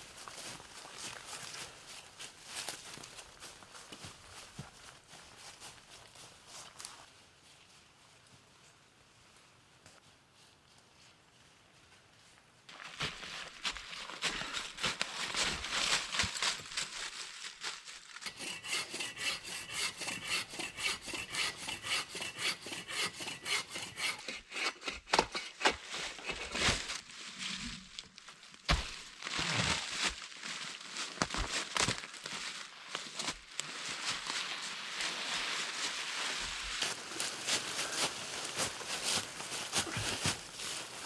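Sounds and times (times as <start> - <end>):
wood rubbing: 18.2 - 25.4, 36.8 - 41.0
hand tool strokes on wood: 18.2 - 26.6, 36.4 - 41.0.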